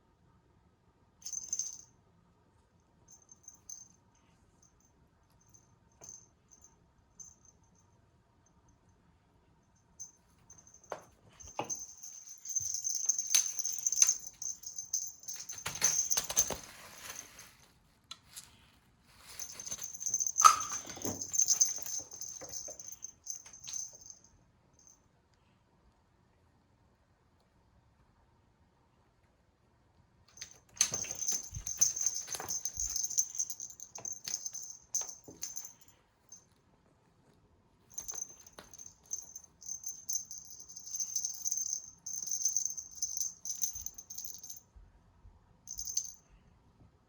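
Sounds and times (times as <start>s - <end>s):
cat toy rattling: 11.3s - 17.4s, 19.2s - 24.1s, 30.4s - 35.8s.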